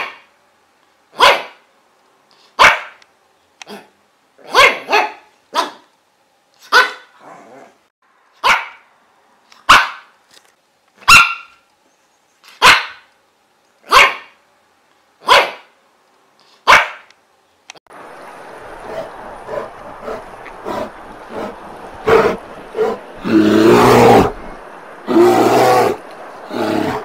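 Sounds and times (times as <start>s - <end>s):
dog barking: 0.0s - 0.3s, 1.2s - 1.6s, 2.6s - 3.0s, 3.7s - 5.9s, 6.6s - 7.2s, 8.4s - 8.9s, 9.6s - 10.1s, 11.0s - 11.6s, 12.5s - 13.1s, 13.9s - 14.4s, 15.2s - 15.7s, 16.6s - 17.1s, 18.8s - 23.0s.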